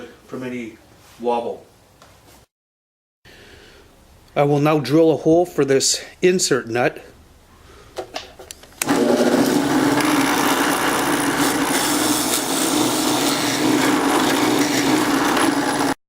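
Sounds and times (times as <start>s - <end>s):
drill clicks: 8.5s - 16.0s
power drill boring into wood: 8.8s - 16.0s.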